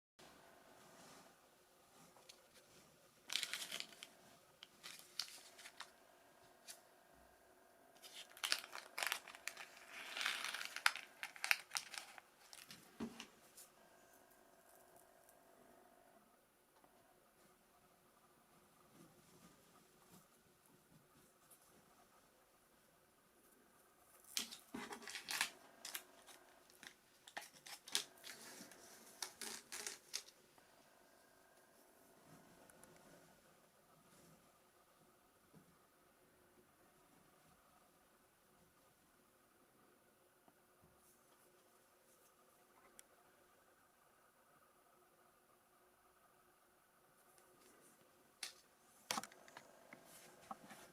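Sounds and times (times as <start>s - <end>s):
plastic packaging crinkling: 2.3s - 6.0s, 8.0s - 13.3s, 24.2s - 30.4s.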